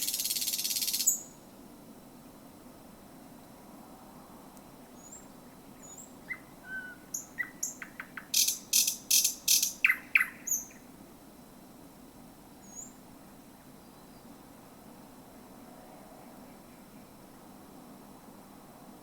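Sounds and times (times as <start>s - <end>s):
bird song with harsh rattles: 0.0s - 1.4s, 5.0s - 10.8s
faint high bird chirps: 0.0s - 1.4s, 5.0s - 10.9s, 12.6s - 13.0s.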